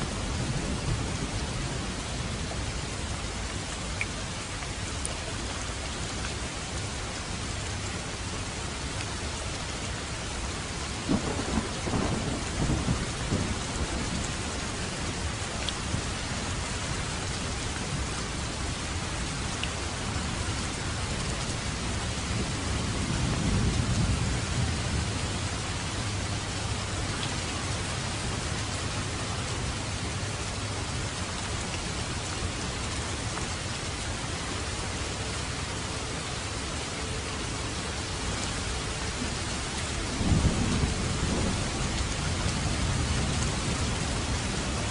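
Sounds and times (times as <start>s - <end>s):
heavy rain: 0.0s - 44.9s
thunder rumbling: 11.1s - 17.1s, 21.6s - 26.8s, 39.8s - 44.9s.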